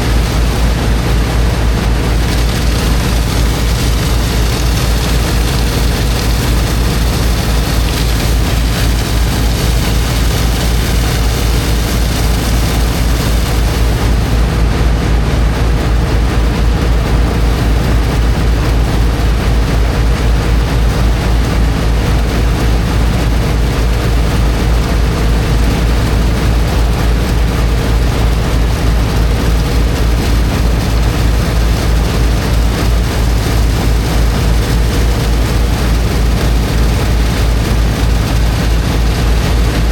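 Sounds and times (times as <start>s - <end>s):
water jetting into sand: 0.0s - 14.2s
water pump engine throbbing: 0.0s - 39.9s.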